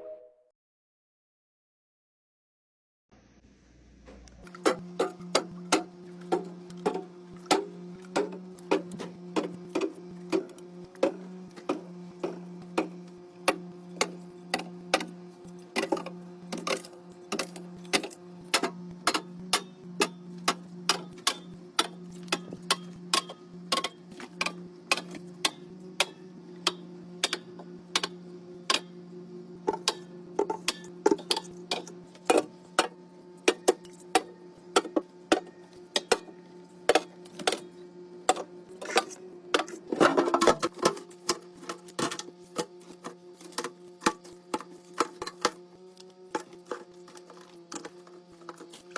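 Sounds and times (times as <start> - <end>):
fridge hum: 3.2 - 48.9.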